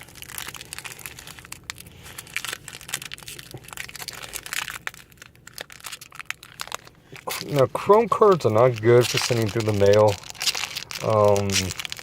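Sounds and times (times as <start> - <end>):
wrapper crinkling and tearing: 0.0 - 12.0.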